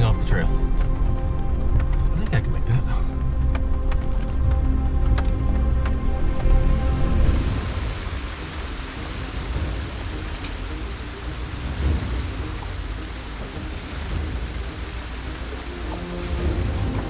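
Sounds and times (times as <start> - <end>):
low rumble: 0.0 - 17.0
heavy rain: 2.9 - 17.0
running water: 3.5 - 17.0.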